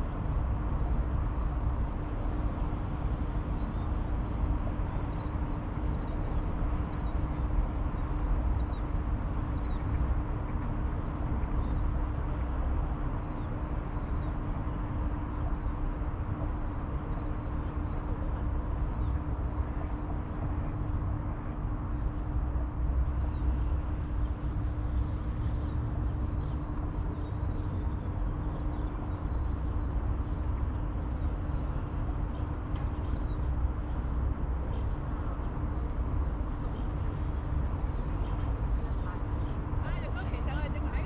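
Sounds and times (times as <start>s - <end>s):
steady low rumble: 0.0s - 13.4s
constant hum: 0.0s - 41.0s.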